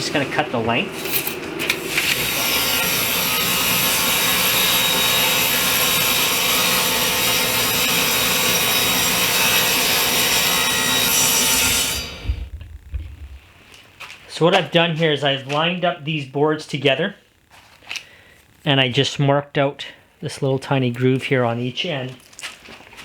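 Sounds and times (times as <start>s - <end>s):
power saw cutting board: 1.0s - 12.6s.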